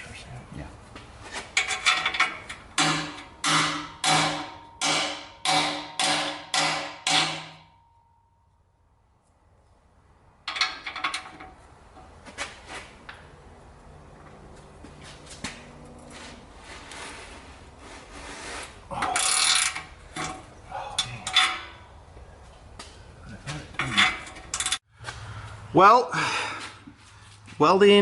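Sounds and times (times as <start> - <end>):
metal tools clinking and clanking: 18.9 - 21.9, 23.6 - 24.8.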